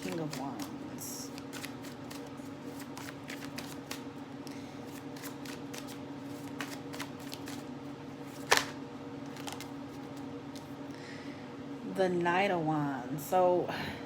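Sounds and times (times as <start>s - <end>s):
cards riffling: 1.3s - 10.7s
card snap: 8.4s - 8.8s.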